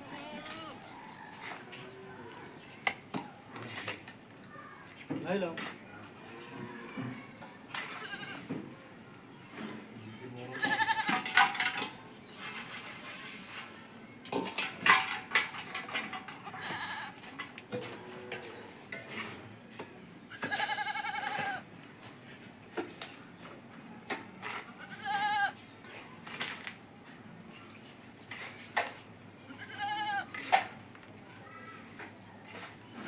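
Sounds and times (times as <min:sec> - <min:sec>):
goat bleating: 0:00.0 - 0:02.0, 0:07.9 - 0:08.5, 0:10.5 - 0:11.2, 0:20.3 - 0:21.6, 0:24.6 - 0:25.6, 0:29.5 - 0:30.3.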